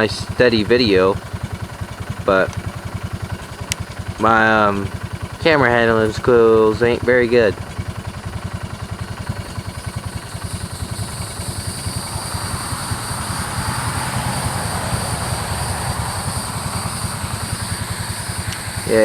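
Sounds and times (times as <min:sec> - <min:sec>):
engine idling with low chugging: 0:00.0 - 0:19.0
hiss: 0:07.8 - 0:19.0.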